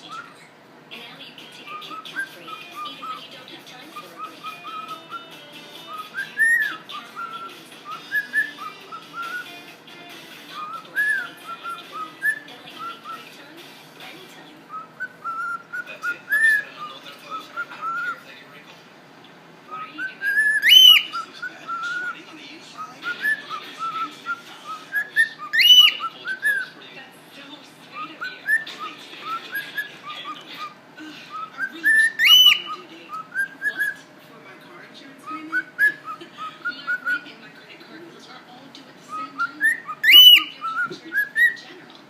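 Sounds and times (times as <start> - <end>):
cockatiel whistling: 0.0 - 0.5, 1.7 - 9.6, 10.4 - 13.3, 14.7 - 18.2, 19.7 - 22.2, 22.8 - 26.8, 28.0 - 34.0, 35.3 - 37.3, 39.1 - 41.6.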